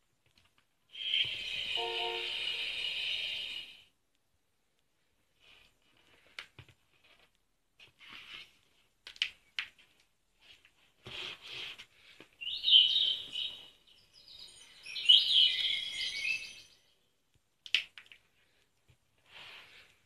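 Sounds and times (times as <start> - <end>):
recorded bird calls from small speaker: 12.4 - 16.9.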